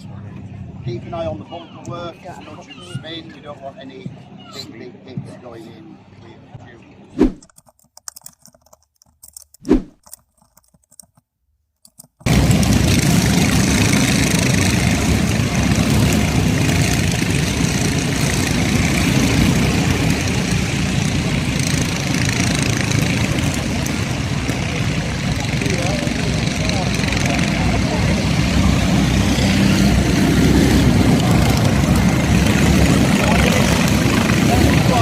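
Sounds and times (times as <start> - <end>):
karts racing engine noise: 12.2 - 35.0.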